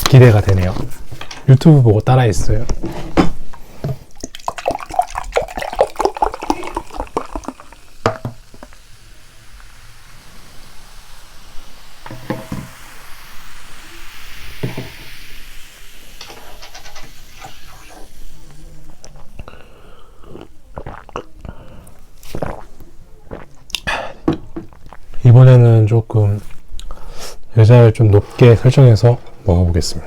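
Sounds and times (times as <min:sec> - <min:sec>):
utensils stirring noodles: 0:16.2 - 0:18.6.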